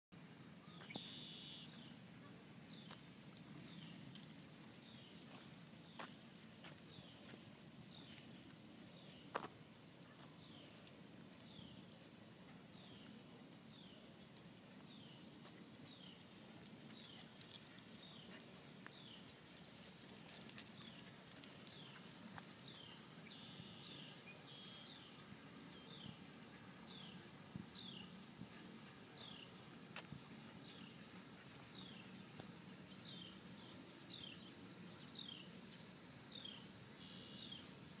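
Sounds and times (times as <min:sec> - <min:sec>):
bird short high falling chirp: 0:00.7 - 0:01.7
light clicks and rustles: 0:02.7 - 0:07.4, 0:09.3 - 0:23.0, 0:31.1 - 0:33.0.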